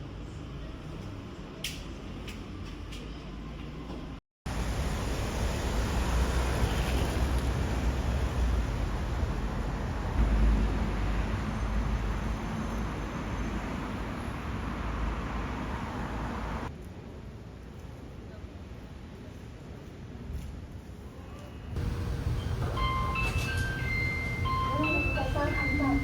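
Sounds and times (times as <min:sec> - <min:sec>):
cars passing with low rumble: 0:00.0 - 0:18.1.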